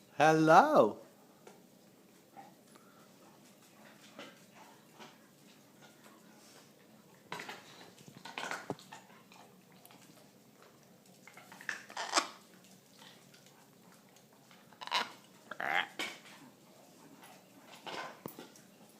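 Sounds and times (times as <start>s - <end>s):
parrots making harsh noises: 11.8s - 12.4s, 14.7s - 16.2s.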